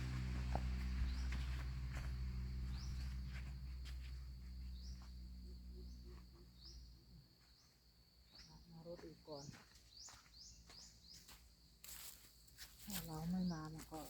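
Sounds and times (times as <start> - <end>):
passing vehicle engine hum: 0.0 - 7.4
high rising chirp: 0.0 - 7.7.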